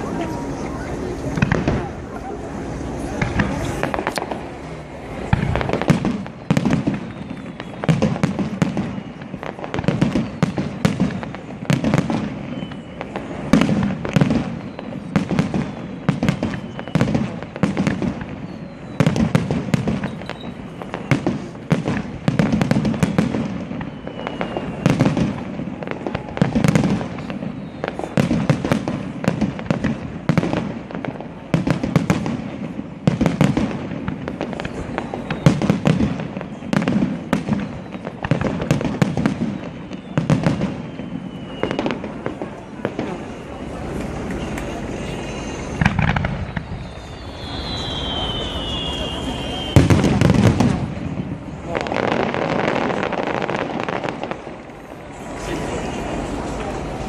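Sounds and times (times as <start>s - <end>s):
fireworks bangs and crackles: 0.0s - 57.0s
faint falling whistles: 6.4s - 10.8s, 12.4s - 13.4s, 14.4s - 21.5s, 22.9s - 26.4s, 27.2s - 28.2s, 34.6s - 35.8s, 37.4s - 38.2s, 39.4s - 42.2s, 42.9s - 50.2s.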